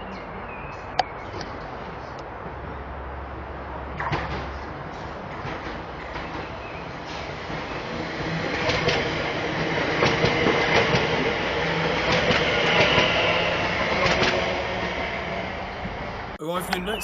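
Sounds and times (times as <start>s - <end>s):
train rumble: 0.8s - 17.0s
train wheels clacking on rail joints: 4.0s - 15.0s.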